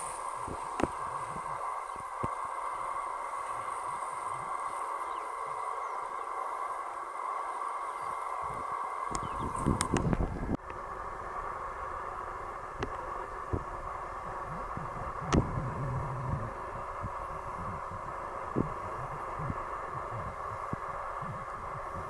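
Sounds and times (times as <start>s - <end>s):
outdoor background hiss: 0.0s - 22.0s
low rumbles on microphone: 8.1s - 10.6s, 11.2s - 22.0s.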